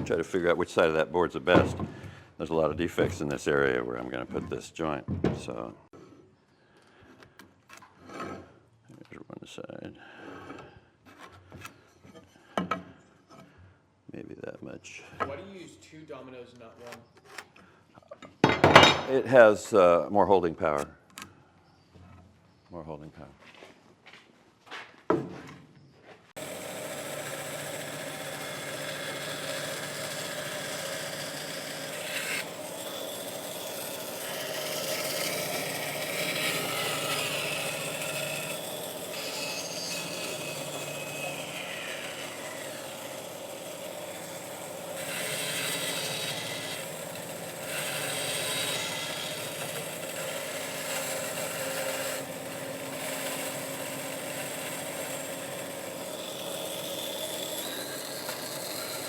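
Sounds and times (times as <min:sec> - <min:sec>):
joiner motor cutting wood: 0:26.4 - 0:59.0.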